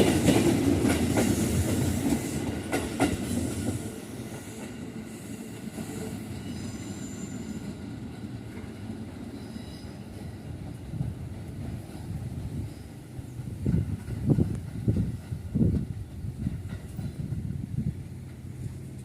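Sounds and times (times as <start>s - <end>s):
train rumbling over crossing: 0.0s - 19.0s
faint high wheel squeal: 4.4s - 7.8s, 9.3s - 10.2s.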